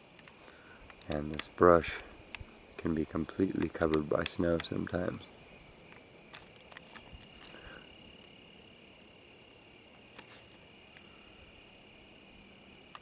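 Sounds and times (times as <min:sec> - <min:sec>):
high-pitched insect trill: 0:00.0 - 0:13.0
light clicks: 0:00.1 - 0:01.6, 0:02.3 - 0:05.2
rustling: 0:00.1 - 0:08.4, 0:09.9 - 0:11.7.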